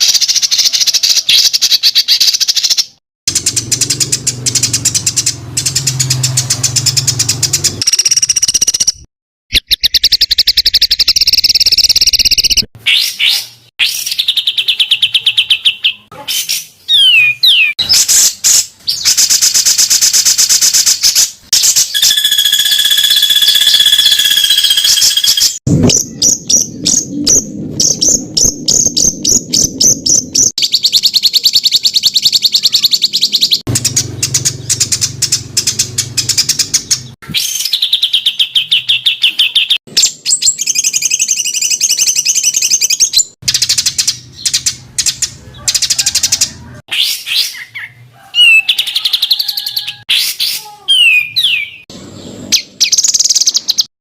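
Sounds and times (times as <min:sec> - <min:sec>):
songbird rapid trills: 0:21.7 - 0:25.6.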